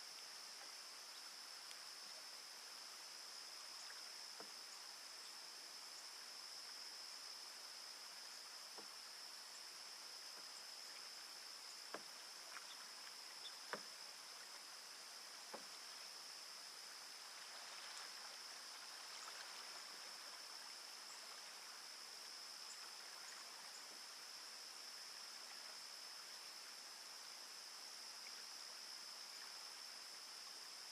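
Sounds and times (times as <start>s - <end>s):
high insect drone: 0.0s - 30.9s
water dripping from paddle: 8.7s - 9.1s, 11.7s - 15.9s
canoe paddle knocking: 11.8s - 12.2s, 13.4s - 14.0s, 15.5s - 15.8s.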